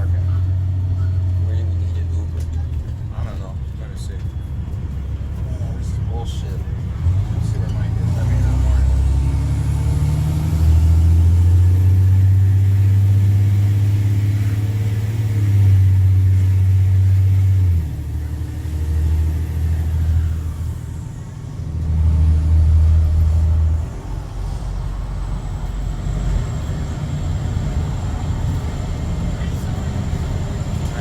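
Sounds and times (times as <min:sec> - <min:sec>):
diesel bus engine under load: 0:00.0 - 0:31.0.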